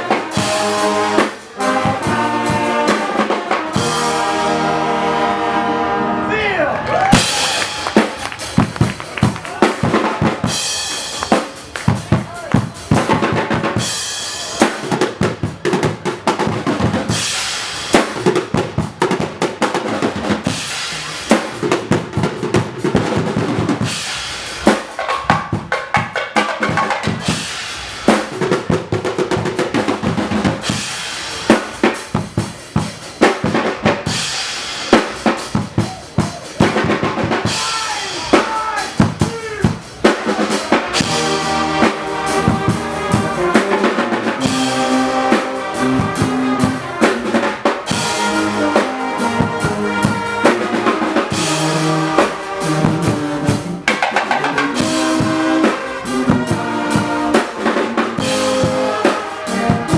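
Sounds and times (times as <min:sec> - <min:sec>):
bass and snare drum beat: 0:00.0 - 0:05.4, 0:06.9 - 0:59.9
loud brass: 0:00.0 - 0:15.2, 0:33.5 - 0:59.9
carnival band playing: 0:00.0 - 0:59.9.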